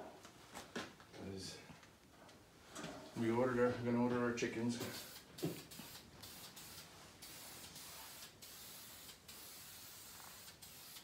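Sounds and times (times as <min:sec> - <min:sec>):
spray paint hissing: 0:04.8 - 0:11.0.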